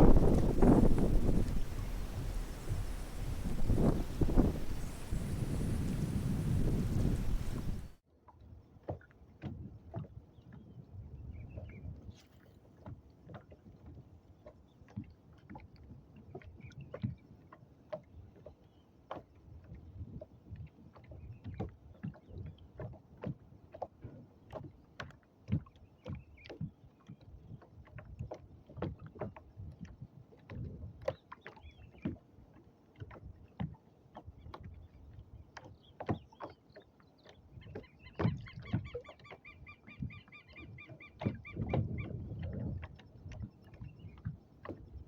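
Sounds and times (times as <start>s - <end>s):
knocks and splashes: 0.0s - 8.0s
small waves lapping on hull: 0.0s - 45.0s.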